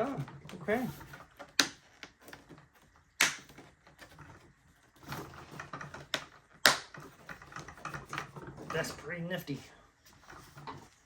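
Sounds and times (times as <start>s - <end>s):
sharp plastic clicks: 3.2s - 3.6s.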